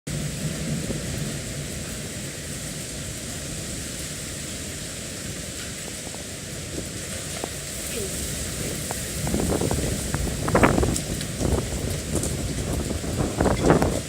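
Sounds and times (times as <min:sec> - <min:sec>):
wind and rain rushing: 0:00.1 - 0:14.0.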